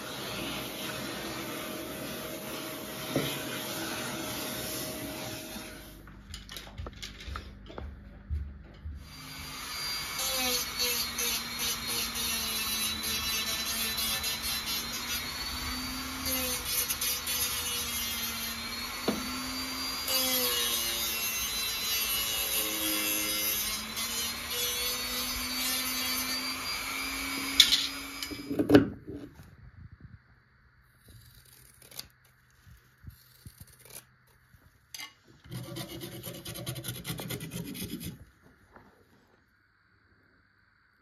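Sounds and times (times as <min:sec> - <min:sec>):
small power tool abrading: 0:09.0 - 0:28.8
rasping rubbing strokes: 0:35.4 - 0:38.3.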